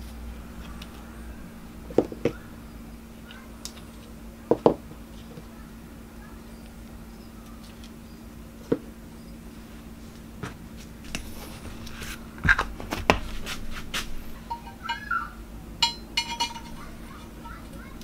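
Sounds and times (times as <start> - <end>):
metal knocks and clinks: 14.4 - 15.2, 15.8 - 17.0.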